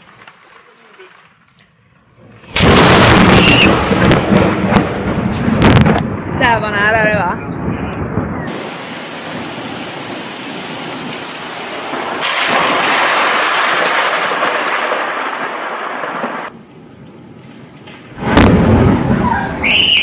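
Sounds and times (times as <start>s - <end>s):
loud thunder crack: 2.5s - 16.6s, 18.0s - 20.0s
heavy rain hiss: 8.5s - 16.5s.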